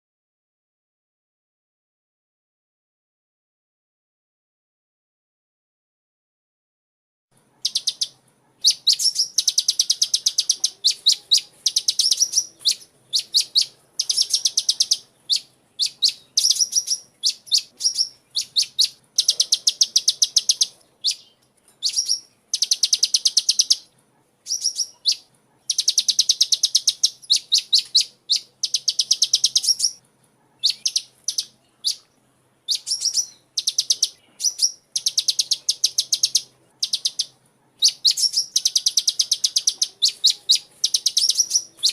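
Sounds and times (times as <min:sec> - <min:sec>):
sunbird singing high trills: 0:07.6 - 0:30.0, 0:30.6 - 0:32.1, 0:32.7 - 0:41.9.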